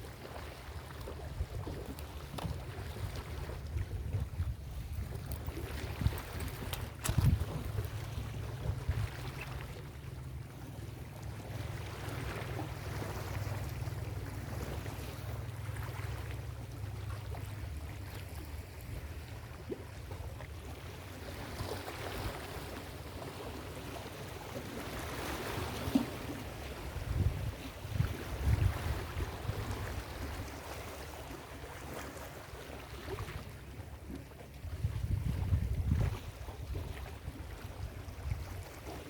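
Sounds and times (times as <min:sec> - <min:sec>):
wind rumbling on microphone: 0:01.2 - 0:09.8, 0:26.8 - 0:30.6, 0:34.5 - 0:39.0.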